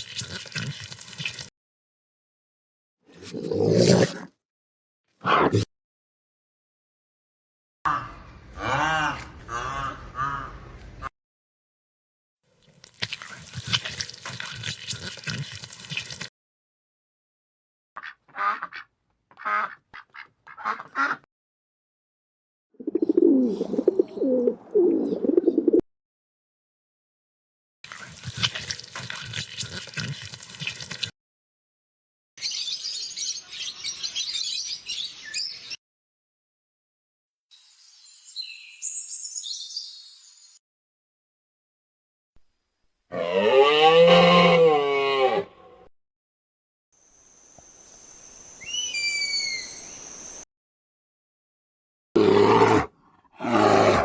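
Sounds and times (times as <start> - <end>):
duck quacking: 8.8 - 10.6, 18.0 - 21.2
clear whistled bird notes: 37.8 - 40.6, 48.0 - 50.4.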